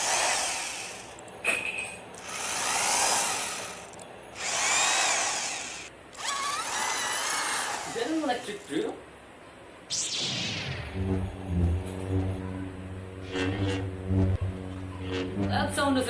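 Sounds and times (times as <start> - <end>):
electric drill whirring: 0.0 - 1.2, 2.2 - 8.6.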